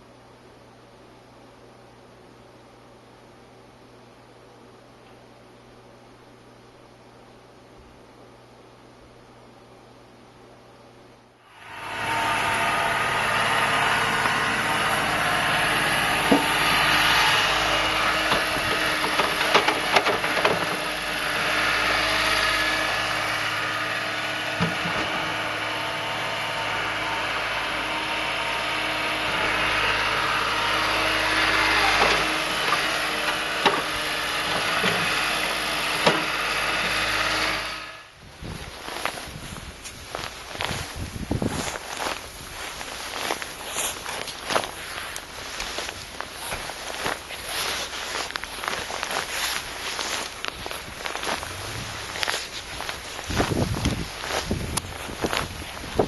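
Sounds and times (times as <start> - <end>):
engine humming: 11.4 - 56.0.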